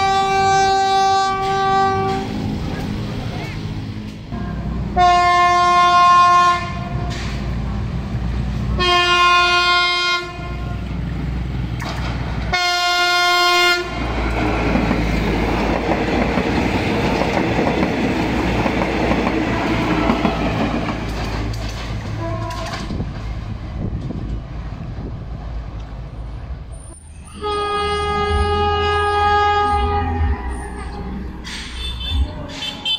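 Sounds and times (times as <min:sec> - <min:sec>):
train horn blasts: 0:00.0 - 0:02.4, 0:04.3 - 0:07.4, 0:08.8 - 0:10.9, 0:12.5 - 0:14.1, 0:22.1 - 0:23.0, 0:27.2 - 0:32.9
train rattling over rails: 0:00.0 - 0:32.9.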